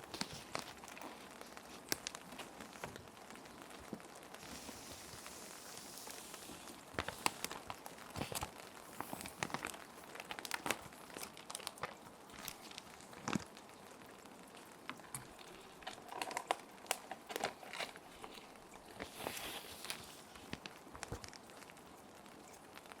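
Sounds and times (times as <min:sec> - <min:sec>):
plastic sheet protectors crinkling: 0:00.0 - 0:13.7, 0:14.7 - 0:21.8
steady rain: 0:00.0 - 0:23.0
paper sliding hiss: 0:04.3 - 0:09.8, 0:17.4 - 0:21.3.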